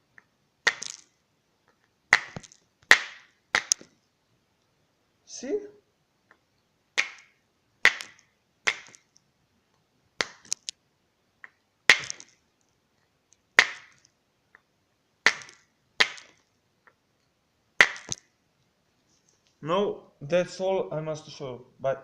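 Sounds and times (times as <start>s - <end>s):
stones clacking together: 0.6s - 4.0s, 7.0s - 9.2s, 10.2s - 10.8s, 11.9s - 12.4s, 15.2s - 16.5s, 17.8s - 18.3s.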